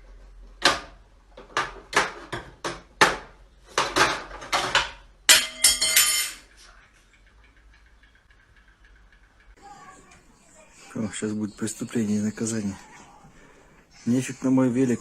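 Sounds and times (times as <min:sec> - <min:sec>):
hard objects clattering: 0:01.4 - 0:10.3.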